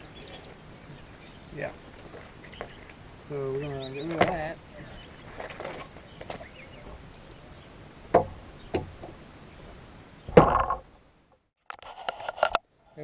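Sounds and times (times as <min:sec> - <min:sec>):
sharp knocks: 0:08.1 - 0:09.2, 0:10.3 - 0:10.9.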